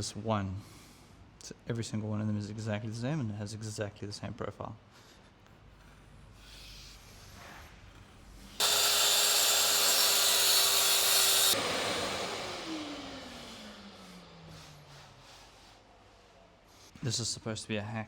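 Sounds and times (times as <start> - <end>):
power tool whining: 8.6 - 15.2.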